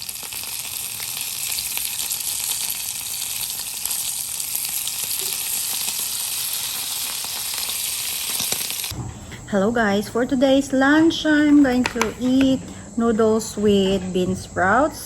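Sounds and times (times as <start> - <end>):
fish sizzling in hot oil: 0.0 - 8.9.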